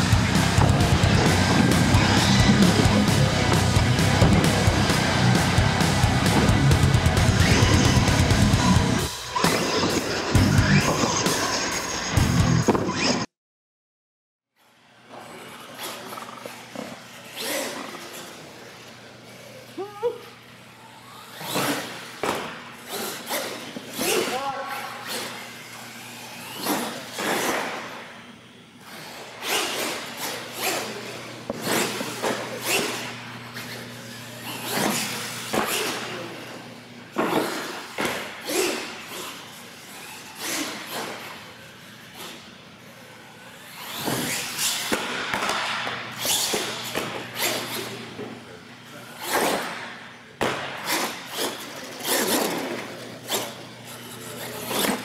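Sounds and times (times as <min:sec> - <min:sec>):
toy truck motor whirring: 0:14.6 - 0:19.8, 0:20.6 - 0:22.2, 0:22.8 - 0:44.9, 0:46.2 - 0:48.1, 0:50.8 - 0:55.0.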